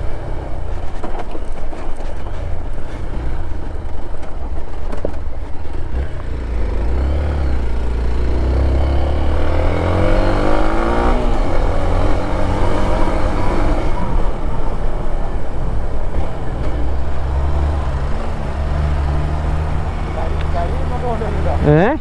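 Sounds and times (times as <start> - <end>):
vehicle engine revving: 5.7 - 15.0, 15.7 - 22.0.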